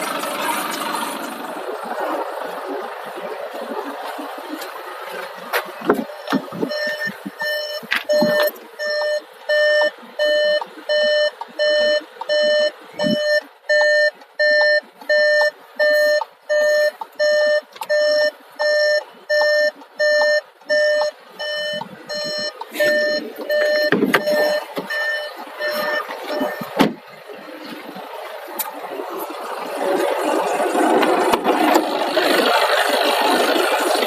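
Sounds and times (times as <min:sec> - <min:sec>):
electronic warning beeps: 0:06.0 - 0:27.5.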